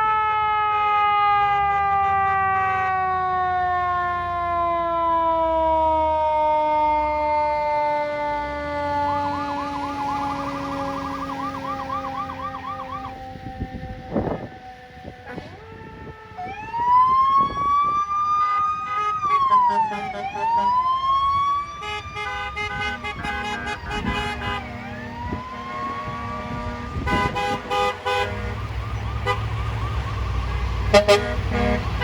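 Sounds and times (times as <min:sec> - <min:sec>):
emergency vehicle siren wailing: 0:00.0 - 0:32.0
vehicle horns honking: 0:00.7 - 0:03.1, 0:15.2 - 0:15.7, 0:18.3 - 0:20.8, 0:21.8 - 0:29.6, 0:30.5 - 0:32.0.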